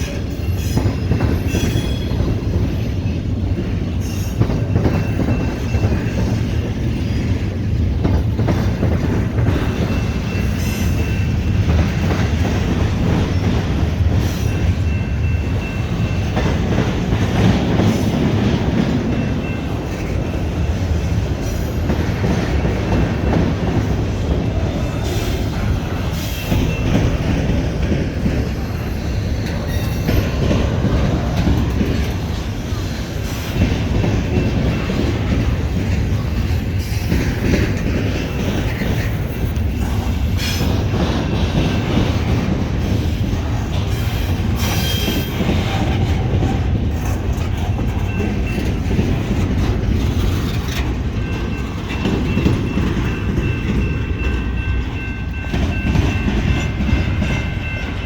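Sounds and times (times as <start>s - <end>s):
faint high wheel squeal: 0.0s - 2.2s, 43.9s - 46.0s
freight train rumbling past: 0.0s - 58.0s
wheels clacking over rail joints: 0.0s - 58.0s.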